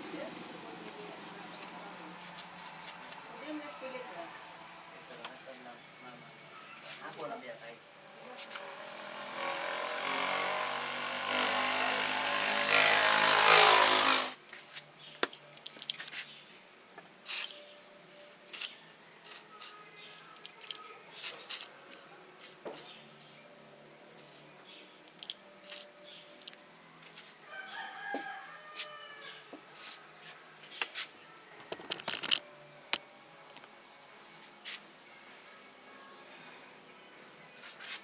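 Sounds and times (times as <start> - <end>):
rooster crowing: 27.4 - 29.5.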